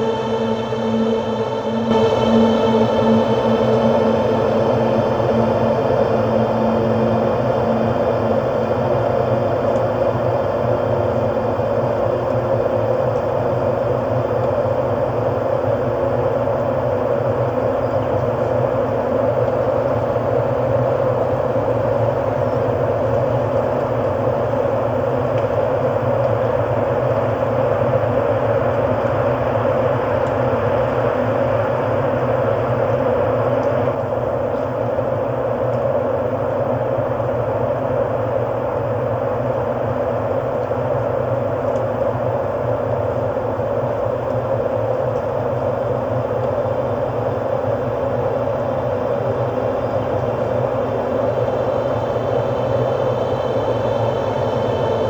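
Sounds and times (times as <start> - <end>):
synthesized ambient drone: 0.0 - 13.1.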